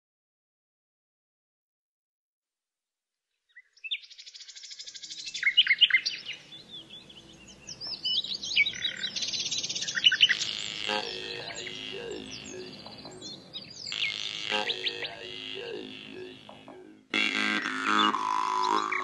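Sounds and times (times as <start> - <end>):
birds trilling and chirping: 3.9 - 19.0.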